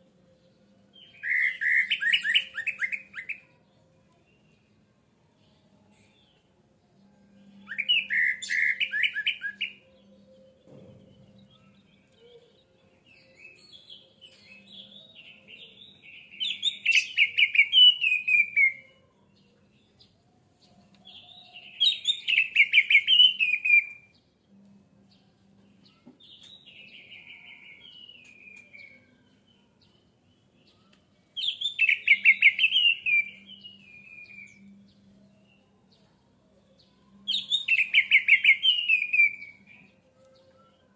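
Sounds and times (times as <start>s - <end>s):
soft bird twittering: 7.2s - 19.1s, 25.8s - 35.7s.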